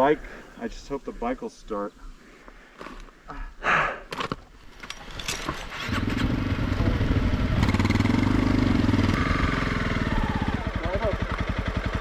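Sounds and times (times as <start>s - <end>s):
motorcycle engine starting and running: 4.8s - 12.0s.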